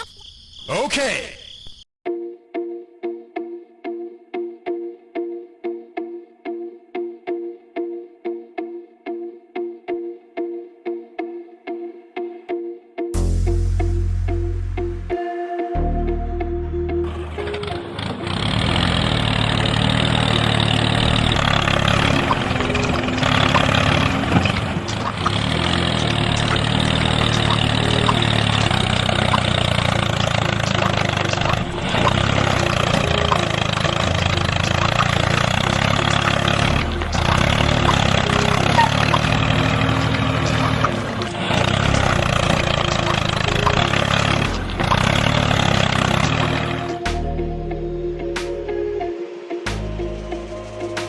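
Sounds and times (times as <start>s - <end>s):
engine running: 16.7s - 48.4s.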